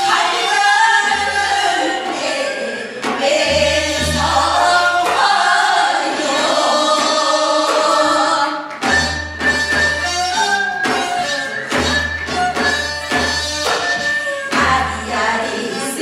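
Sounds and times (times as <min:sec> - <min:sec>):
group singing folk song: 0:00.0 - 0:09.7, 0:14.5 - 0:16.0.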